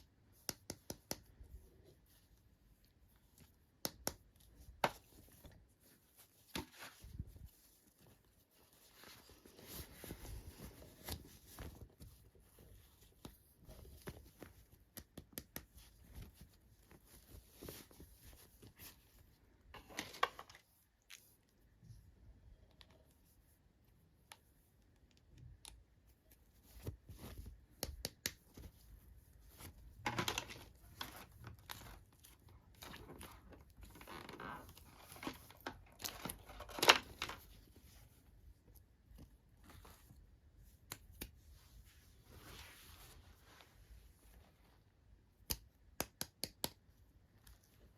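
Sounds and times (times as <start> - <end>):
small clicks and taps: 0.4 - 1.5, 14.0 - 15.8, 45.4 - 46.8.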